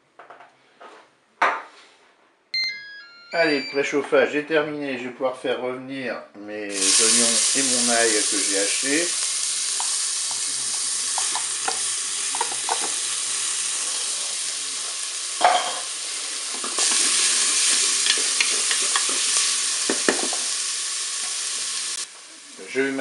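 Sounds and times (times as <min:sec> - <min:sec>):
onion and garlic sizzling in oil: 0:06.7 - 0:23.0.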